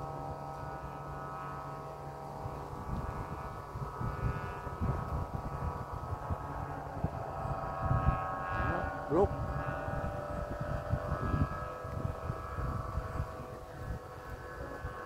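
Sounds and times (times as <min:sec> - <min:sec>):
steady multi-toned hum: 0:00.0 - 0:15.0
wind gusting against microphone: 0:00.0 - 0:15.0.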